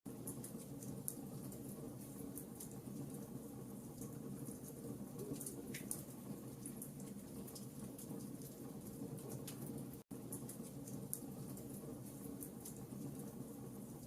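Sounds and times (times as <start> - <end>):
wood fire crackling: 0.1 - 14.0.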